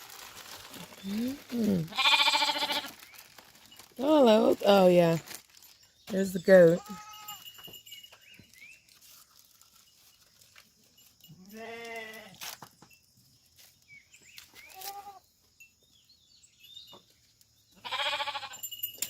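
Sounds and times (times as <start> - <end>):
sheep and goats bleating: 0.8 - 3.1, 6.6 - 7.6, 11.3 - 12.4, 14.6 - 15.3, 17.8 - 18.7.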